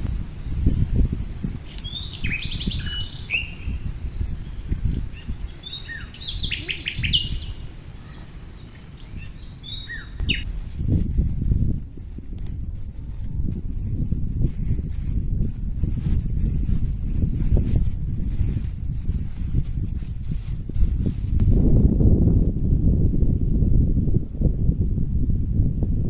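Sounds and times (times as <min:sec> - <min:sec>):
wild birds chirping: 0:01.7 - 0:10.5.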